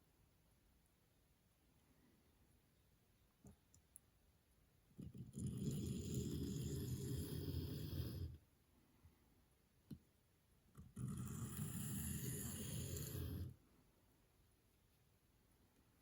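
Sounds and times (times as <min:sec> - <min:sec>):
faint click: 0:03.4 - 0:04.1.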